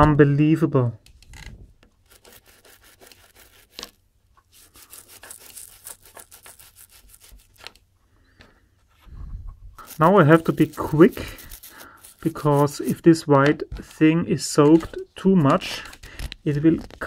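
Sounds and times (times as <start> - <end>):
faint scrubbing strokes: 4.5 - 7.6, 8.8 - 13.1.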